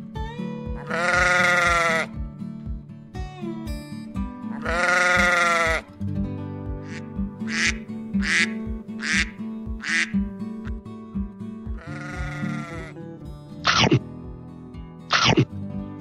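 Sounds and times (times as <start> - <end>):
background music with steady beat: 0.0 - 16.0
sheep bleating: 0.8 - 2.1, 4.5 - 5.9, 6.8 - 10.2, 11.8 - 13.0.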